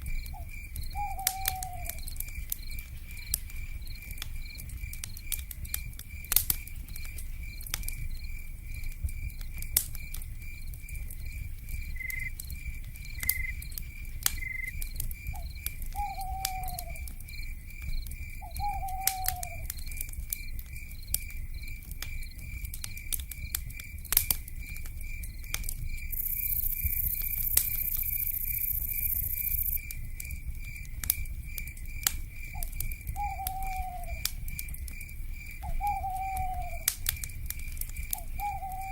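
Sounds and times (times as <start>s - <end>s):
wood fire crackling: 0.0s - 38.9s
owl call: 1.0s - 2.0s, 16.0s - 17.1s, 18.6s - 19.7s, 33.2s - 34.2s, 35.7s - 36.9s, 38.2s - 38.9s
pulsing insect trill: 13.1s - 13.7s, 26.1s - 29.9s.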